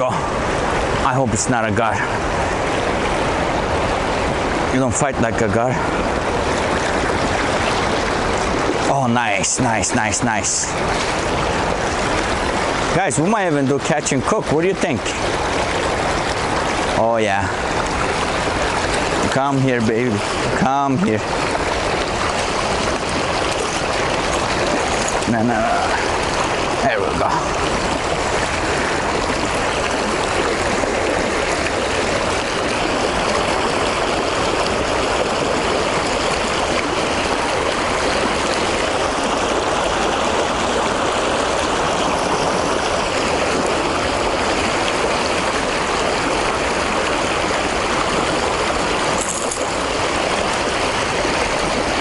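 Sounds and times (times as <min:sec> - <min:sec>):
river water rushing: 0:00.0 - 0:52.0.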